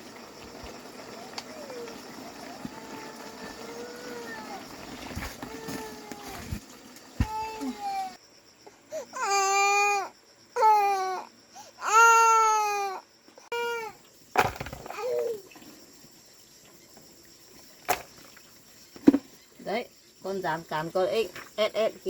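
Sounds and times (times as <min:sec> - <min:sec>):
young child crying: 0:02.6 - 0:04.7, 0:05.4 - 0:06.5, 0:07.2 - 0:08.2.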